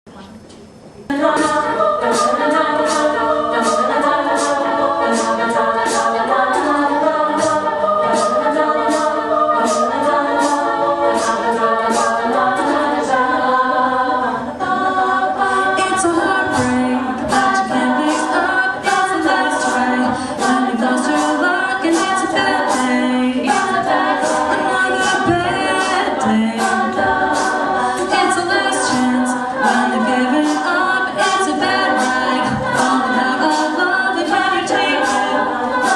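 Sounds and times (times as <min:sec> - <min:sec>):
female voices singing in harmony: 0:01.1 - 0:35.9
percussive hits: 0:15.8 - 0:35.9.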